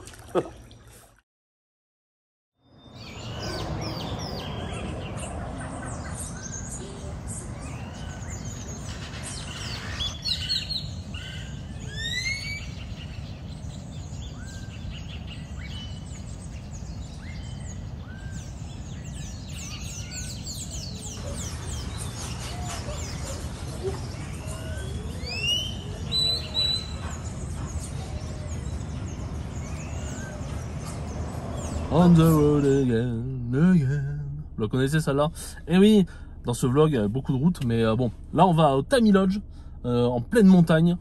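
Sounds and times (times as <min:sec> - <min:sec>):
birds chirping and whistling: 0:02.7 - 0:33.7
low background rumble: 0:26.8 - 0:41.0.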